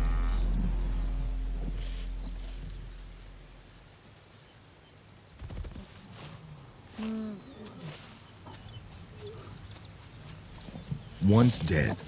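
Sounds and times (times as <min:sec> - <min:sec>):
background music: 0:00.0 - 0:03.8
low rustling: 0:00.0 - 0:03.9.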